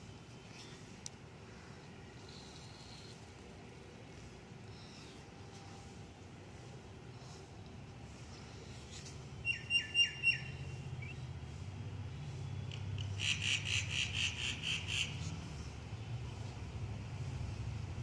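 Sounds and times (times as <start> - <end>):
bird chirping: 9.4 - 11.3.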